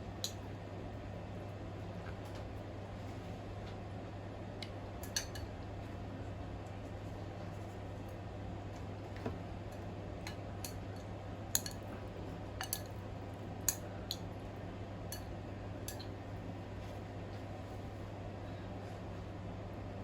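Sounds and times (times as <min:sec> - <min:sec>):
steady low hum: 0:00.0 - 0:20.0
cutlery clicking against a bowl: 0:05.0 - 0:05.5, 0:10.3 - 0:11.8, 0:12.6 - 0:13.0, 0:15.1 - 0:16.1.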